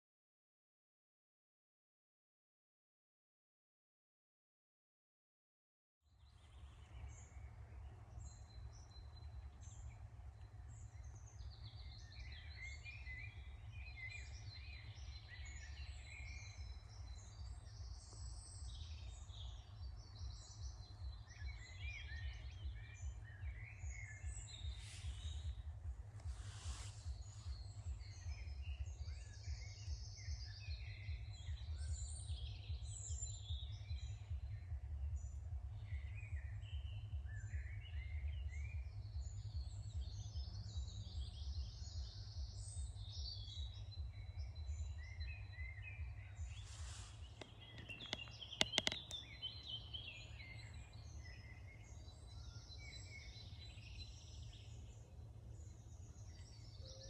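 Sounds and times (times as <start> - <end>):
songbirds chirping and trilling: 6.1 - 57.0
low rumble: 22.3 - 41.7
sharp clicks: 47.4 - 49.3.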